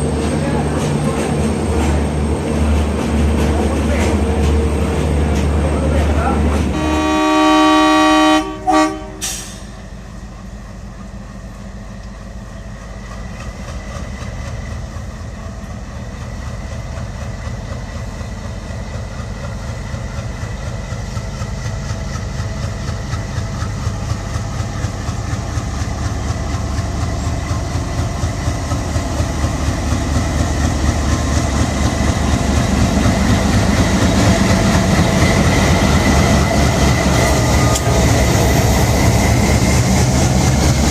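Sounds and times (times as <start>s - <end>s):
train rumbling: 0.0s - 40.9s
locomotive horn blasts: 6.7s - 9.5s
wheels clicking over rail joints: 11.5s - 39.3s.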